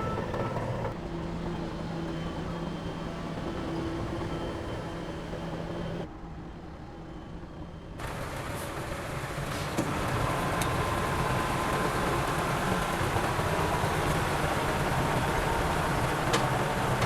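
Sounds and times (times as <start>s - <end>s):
diesel engine running: 0.0s - 1.0s, 8.0s - 17.0s.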